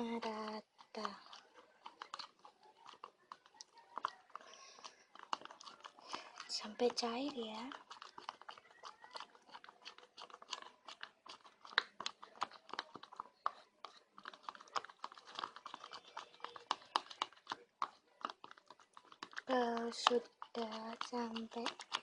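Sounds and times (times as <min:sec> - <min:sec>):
stirrer clicking in cup: 0:00.0 - 0:22.0
wet sticky stirring: 0:00.0 - 0:22.0.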